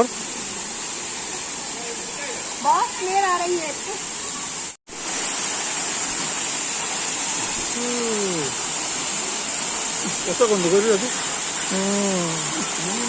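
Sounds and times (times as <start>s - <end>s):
waterfall rushing: 0.0s - 13.0s
person calling out: 7.8s - 8.6s, 11.7s - 13.0s.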